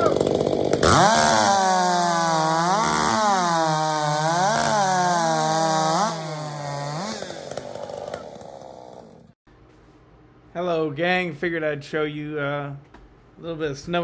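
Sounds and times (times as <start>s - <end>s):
chainsaw cutting at full throttle: 0.0s - 9.4s.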